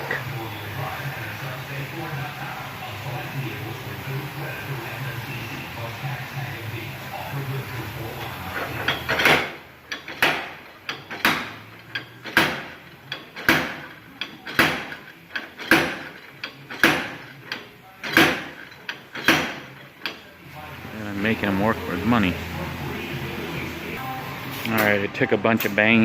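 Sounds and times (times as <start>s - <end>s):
hammer striking metal hub: 8.2s - 20.3s.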